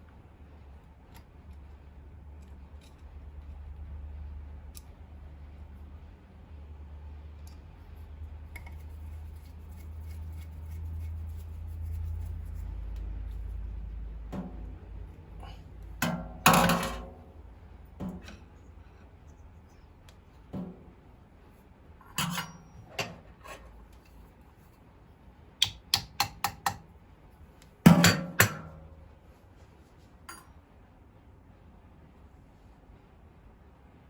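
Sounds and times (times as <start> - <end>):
tools knocking and clicking: 14.4 - 14.8, 16.0 - 17.2, 18.0 - 18.5, 22.0 - 24.1, 25.6 - 26.9, 27.9 - 28.9.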